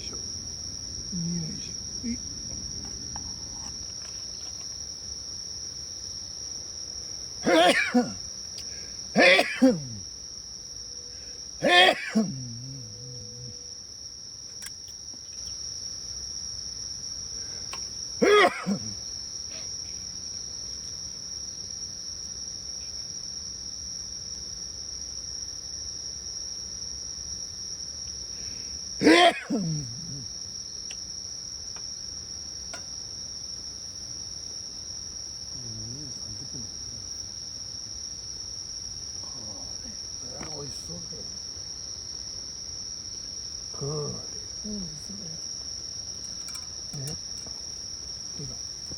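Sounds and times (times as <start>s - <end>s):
insects chirping: 0.0s - 48.9s.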